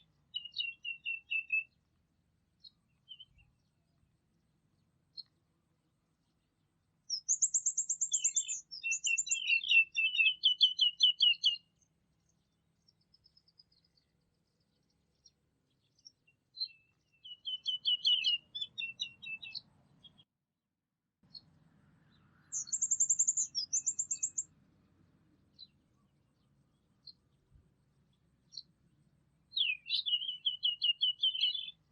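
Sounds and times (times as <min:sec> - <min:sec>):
bird chirps: 0:00.0 - 0:01.8, 0:02.6 - 0:04.0, 0:04.7 - 0:05.4, 0:07.1 - 0:20.3, 0:21.2 - 0:24.5, 0:25.5 - 0:28.7, 0:29.5 - 0:31.9
songbird singing: 0:00.0 - 0:20.3, 0:21.2 - 0:31.9.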